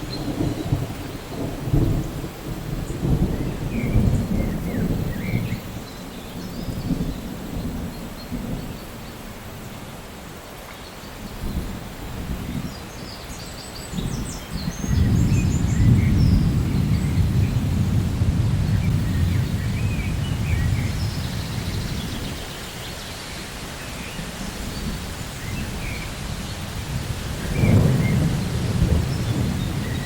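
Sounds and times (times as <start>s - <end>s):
thunder rumbling: 0.0s - 8.8s, 14.0s - 22.6s, 24.0s - 30.0s
steady rain: 0.0s - 30.0s.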